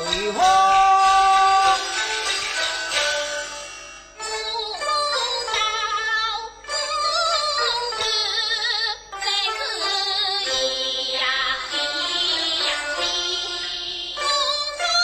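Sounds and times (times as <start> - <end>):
high voice opera singing: 0.0 - 2.0
instrumental accompaniment: 0.0 - 15.0.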